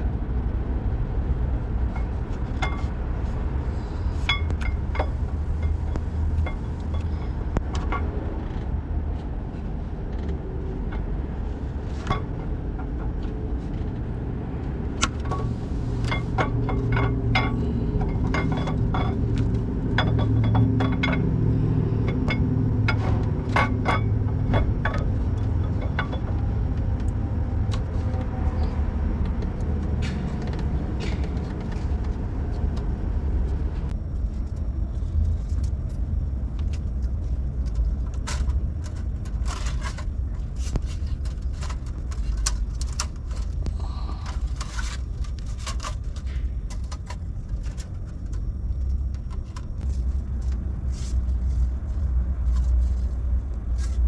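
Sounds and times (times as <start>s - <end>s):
low rumble: 0.0s - 54.0s
metal clinks and rattles: 15.2s - 26.6s.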